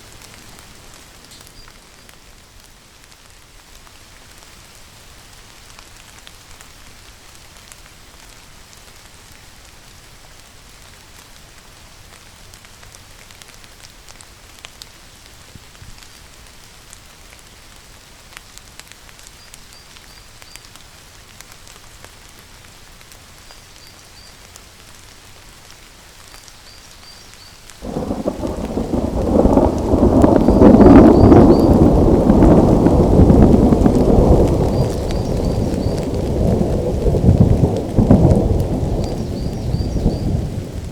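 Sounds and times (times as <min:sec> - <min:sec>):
steady rain falling: 0:00.0 - 0:40.9
thunder crack and rumble: 0:27.8 - 0:40.9.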